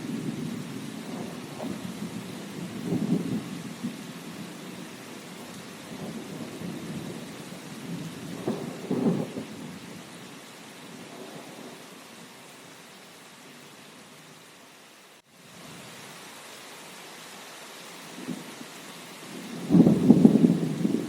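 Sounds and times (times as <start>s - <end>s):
thunder rumbling: 0.0s - 9.8s, 19.3s - 21.0s
steady rain: 0.0s - 21.0s.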